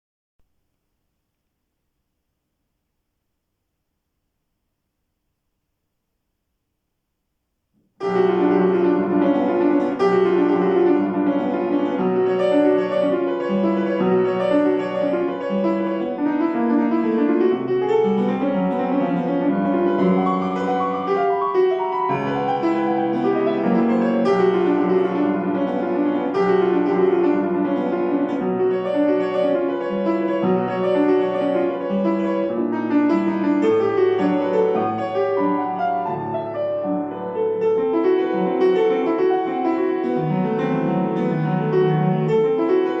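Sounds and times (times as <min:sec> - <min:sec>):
solo classical piano piece: 0:07.7 - 0:43.0.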